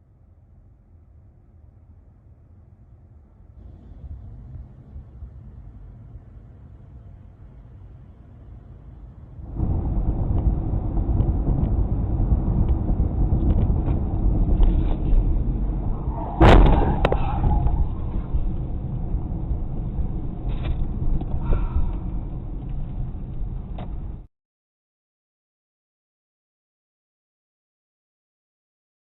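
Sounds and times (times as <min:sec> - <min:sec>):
vehicle engine and road rumble: 0:03.6 - 0:24.3
sharp loud thump: 0:16.2 - 0:17.9.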